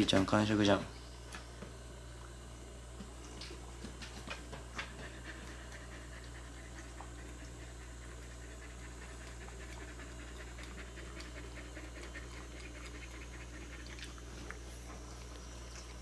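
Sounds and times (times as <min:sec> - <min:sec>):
cat eating wet food: 0:05.3 - 0:16.0.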